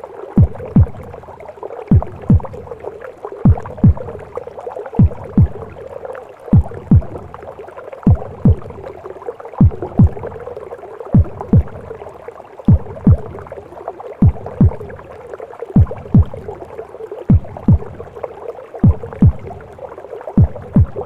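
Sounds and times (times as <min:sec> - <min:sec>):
heartbeat double thump: 0:00.4 - 0:01.2, 0:01.9 - 0:02.7, 0:03.4 - 0:04.2, 0:05.0 - 0:05.8, 0:06.5 - 0:07.4, 0:08.1 - 0:08.9, 0:09.6 - 0:10.4, 0:11.2 - 0:12.0, 0:12.7 - 0:13.5, 0:14.2 - 0:15.0, 0:15.8 - 0:16.6, 0:17.3 - 0:18.2, 0:18.8 - 0:19.7, 0:20.4 - 0:21.0.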